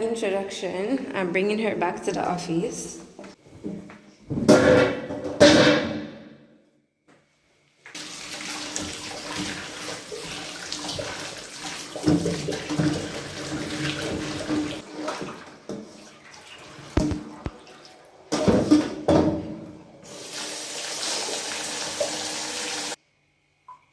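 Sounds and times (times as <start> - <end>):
tap water running into sink: 7.9 - 19.3, 20.1 - 23.0.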